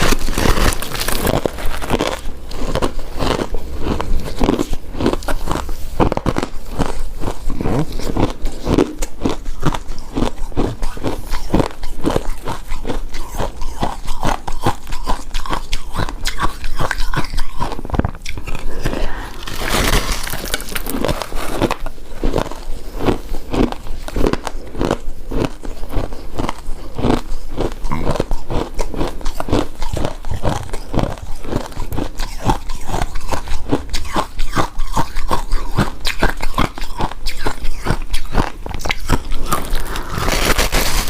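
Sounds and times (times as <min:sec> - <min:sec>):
chewing and crunching ice: 0:00.0 - 0:41.0
mouth sounds: 0:07.4 - 0:09.8, 0:27.8 - 0:28.5.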